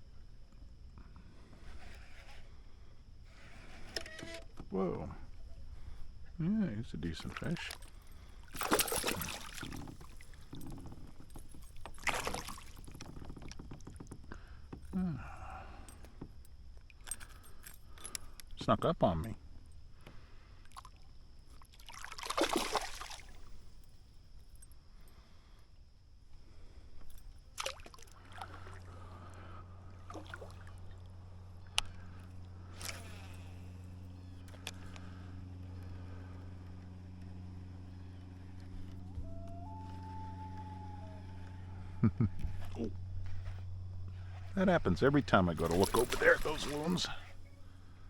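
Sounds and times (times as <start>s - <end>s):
steady low hum: 0.0s - 48.0s
fish splashing in water: 8.5s - 10.2s, 11.9s - 12.8s, 21.7s - 23.4s, 45.6s - 47.2s.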